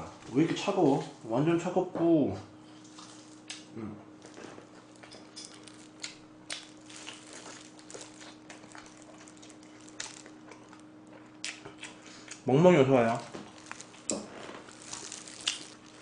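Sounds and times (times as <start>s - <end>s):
faint steady hum: 0.0s - 16.0s
person chewing food: 2.8s - 12.5s, 13.1s - 16.0s.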